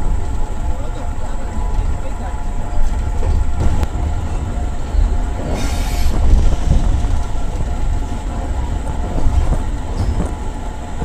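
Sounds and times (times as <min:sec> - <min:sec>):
train carriage and wheels rumbling: 0:00.0 - 0:11.0
brief hiss: 0:05.6 - 0:06.2.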